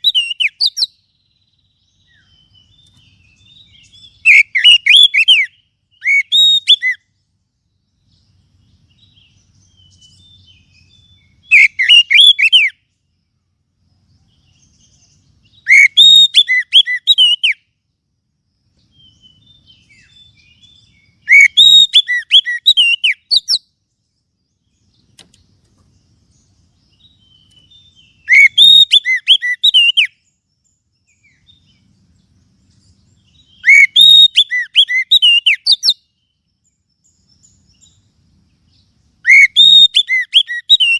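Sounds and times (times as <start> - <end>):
bird singing whistled phrases: 0.0 - 7.2, 8.9 - 12.9, 14.3 - 17.7, 18.9 - 23.8, 26.9 - 31.8, 32.8 - 36.4, 39.2 - 40.9.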